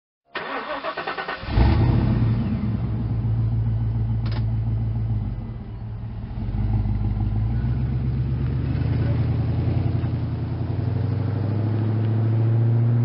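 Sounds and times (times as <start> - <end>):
car engine starter cranking: 0.4 - 1.9
car engine idling: 0.4 - 11.9.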